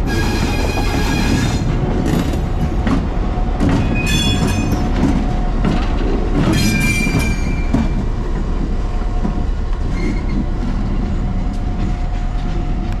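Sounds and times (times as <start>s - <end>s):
diesel train rumbling past: 0.0s - 13.0s
faint wheel squeal: 9.9s - 10.5s.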